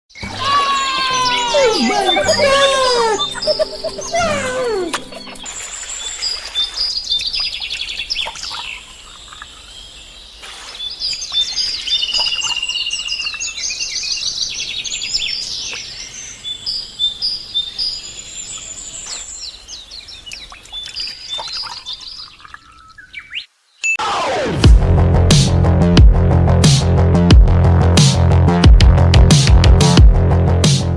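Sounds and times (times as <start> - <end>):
birds chirping and trilling: 0.1 - 23.9.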